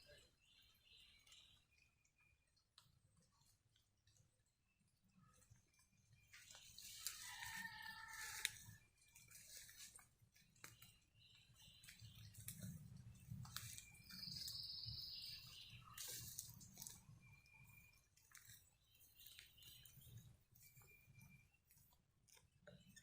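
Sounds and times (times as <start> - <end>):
footsteps on wet leaves and twigs: 6.2 - 23.0.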